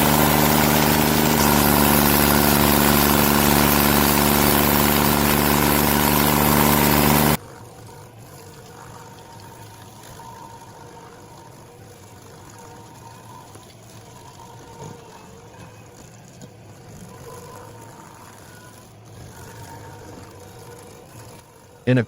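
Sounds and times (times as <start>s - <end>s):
stump grinder engine running: 0.0s - 8.3s
grinding hiss: 0.0s - 22.0s.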